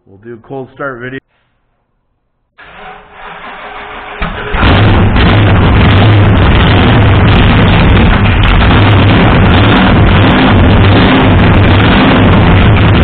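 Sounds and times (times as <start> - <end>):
loud engine running: 2.7 - 13.0.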